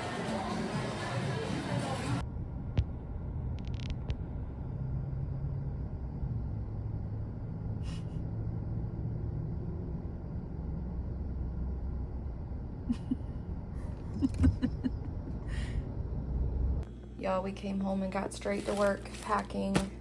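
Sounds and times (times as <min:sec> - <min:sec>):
car driving rumble inside cabin: 0:02.1 - 0:16.9.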